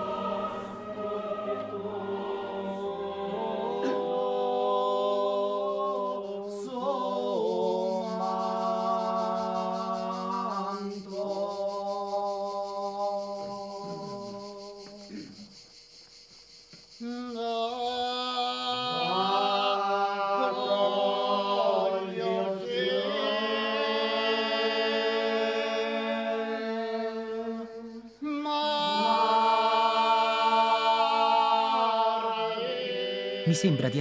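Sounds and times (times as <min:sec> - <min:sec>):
music: 0:00.0 - 0:15.2
unaccompanied voices chanting: 0:00.0 - 0:15.4, 0:17.0 - 0:34.0.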